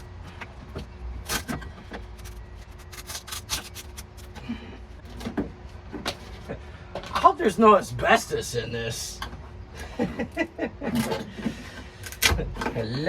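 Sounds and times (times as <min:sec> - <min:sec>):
low steady hum: 0:00.0 - 0:13.0
mat scraping and tearing off metal: 0:01.2 - 0:04.4.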